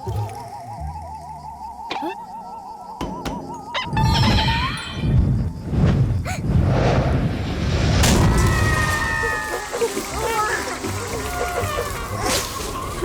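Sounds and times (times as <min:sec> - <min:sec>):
sharp crash: 0:06.6 - 0:09.1
background music: 0:08.2 - 0:13.0.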